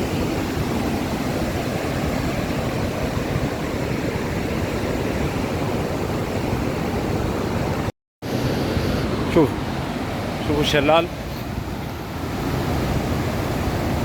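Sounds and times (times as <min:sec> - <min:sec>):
waterfall roaring: 0:00.0 - 0:11.1.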